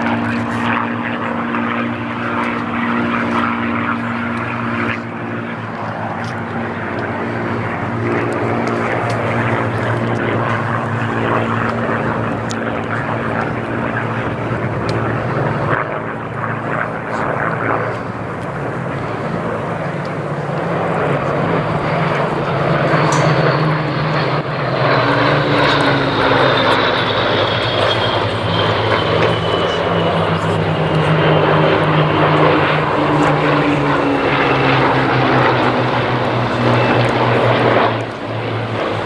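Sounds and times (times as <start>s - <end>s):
aircraft piston engines droning: 0.0s - 39.0s
high whine of passing aircraft: 0.0s - 39.0s.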